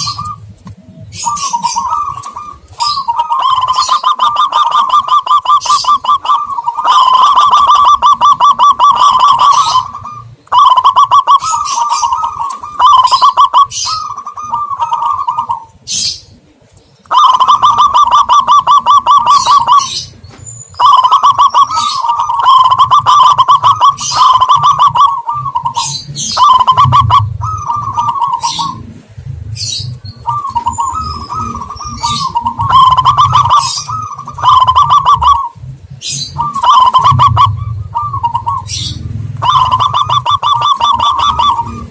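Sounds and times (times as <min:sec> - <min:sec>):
dove calls trilled cooing: 0:00.0 - 0:41.9
low rumble: 0:25.4 - 0:41.9.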